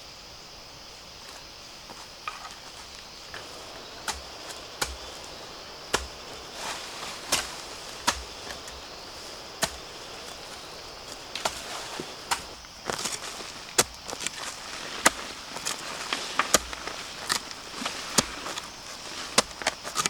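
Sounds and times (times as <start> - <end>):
high insect drone: 0.0 - 20.0
blade chopping bamboo: 3.3 - 18.6.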